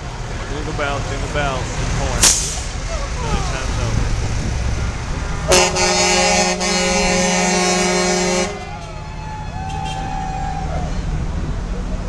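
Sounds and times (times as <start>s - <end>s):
passing vehicles rumbling: 0.0s - 12.0s
truck air horn blast: 5.5s - 8.9s.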